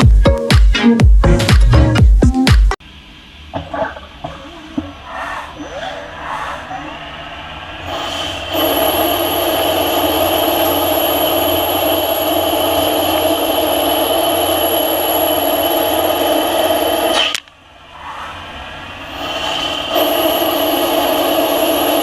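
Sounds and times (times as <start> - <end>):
lathe machining with high whine: 7.0 - 22.0.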